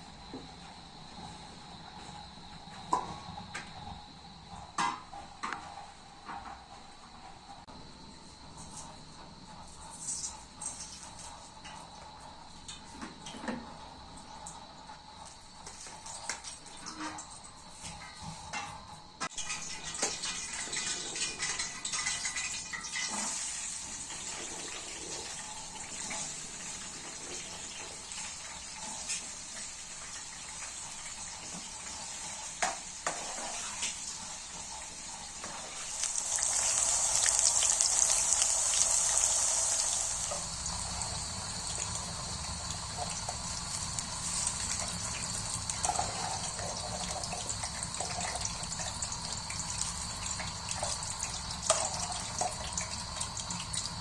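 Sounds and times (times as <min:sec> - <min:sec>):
rain hissing: 0:29.5 - 0:54.0.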